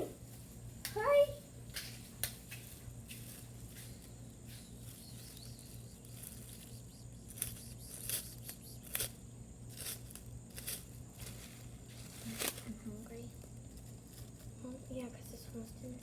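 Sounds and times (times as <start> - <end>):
rustling: 1.8 - 9.1, 9.7 - 15.3
low hum: 3.0 - 14.8.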